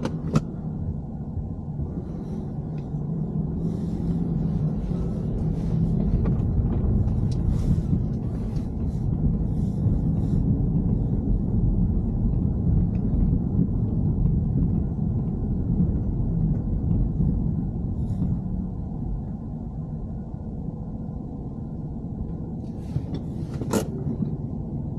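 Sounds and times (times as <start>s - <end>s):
car engine and road noise: 0.0s - 24.9s.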